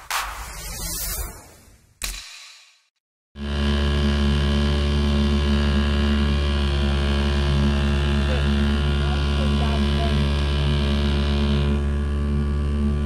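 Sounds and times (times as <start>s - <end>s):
boat engine running: 3.4s - 13.0s.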